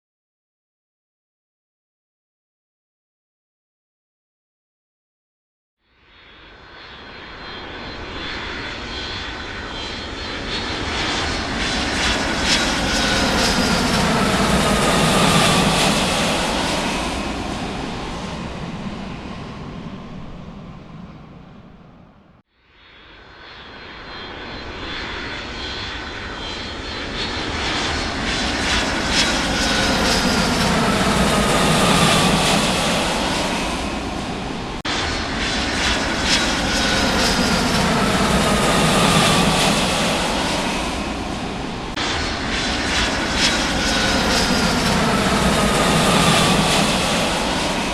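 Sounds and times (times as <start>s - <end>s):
jet aircraft flying over: 6.1s - 47.9s.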